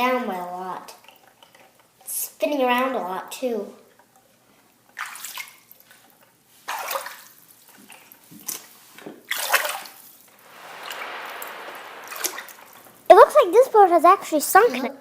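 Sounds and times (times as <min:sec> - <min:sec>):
steady rush of water: 0:10.4 - 0:14.7.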